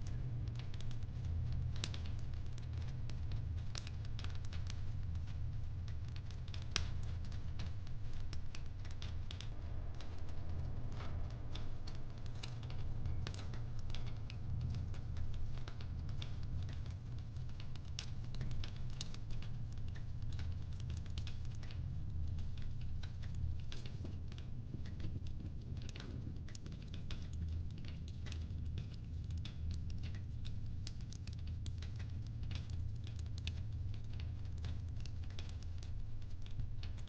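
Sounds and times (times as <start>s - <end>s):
low rumble: 9.5s - 14.9s
wood fire crackling: 10.8s - 37.0s.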